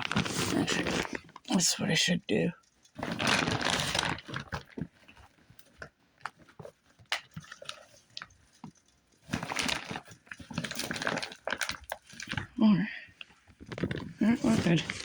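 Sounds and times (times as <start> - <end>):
bag rustling: 0.0 - 1.4, 3.0 - 5.4, 9.2 - 12.6, 13.5 - 15.0.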